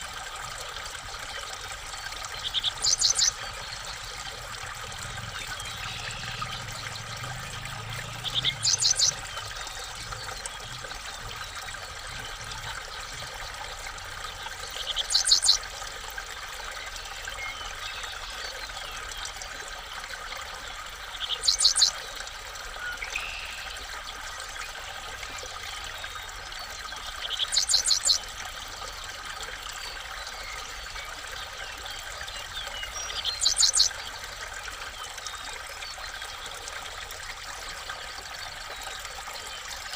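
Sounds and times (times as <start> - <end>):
steady hiss like running water: 0.0 - 39.9
bird calling: 2.4 - 3.4, 14.9 - 15.6, 21.2 - 21.9, 27.3 - 28.2, 33.2 - 33.9.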